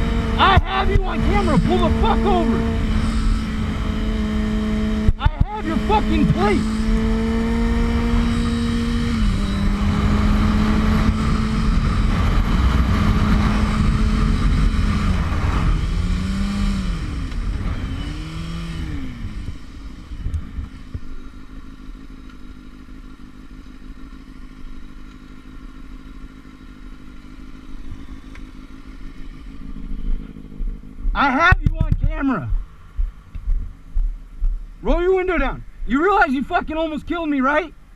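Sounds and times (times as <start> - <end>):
motorcycle engine running: 0.0 - 37.9
wind noise: 5.0 - 19.5.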